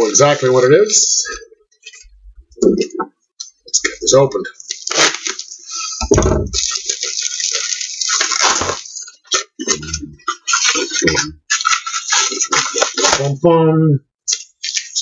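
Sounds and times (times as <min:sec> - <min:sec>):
packaging ripping: 0:04.6 - 0:06.0, 0:06.6 - 0:09.7, 0:10.5 - 0:13.3
package thump: 0:06.0 - 0:06.7.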